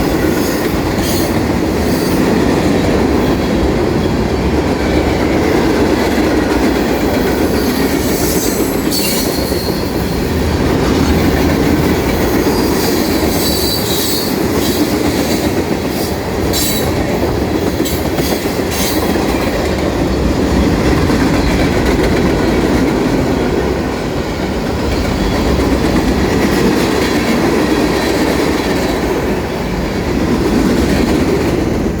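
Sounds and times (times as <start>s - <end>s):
freight train rumbling past: 0.0s - 32.0s
high-pitched wheel squeal: 7.6s - 10.0s.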